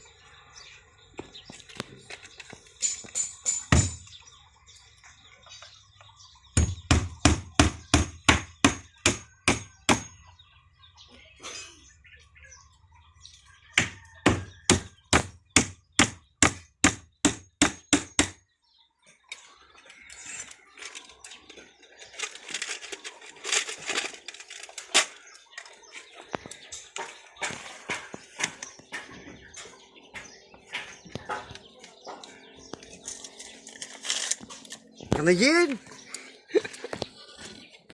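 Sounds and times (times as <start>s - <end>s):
busy scraping noise: 19.4s - 29.8s, 30.8s - 35.5s.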